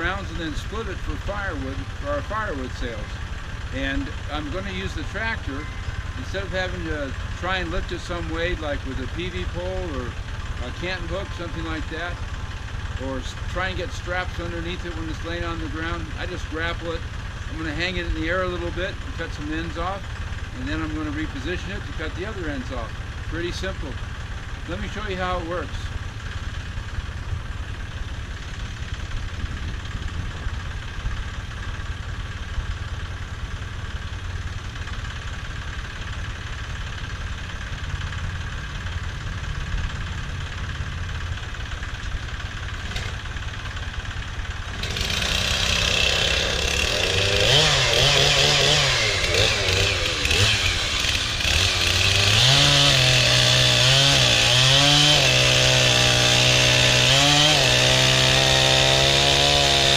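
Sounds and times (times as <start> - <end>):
chainsaw cutting log: 0.0 - 26.8, 40.2 - 59.9
tractor engine rumbling: 0.0 - 59.9.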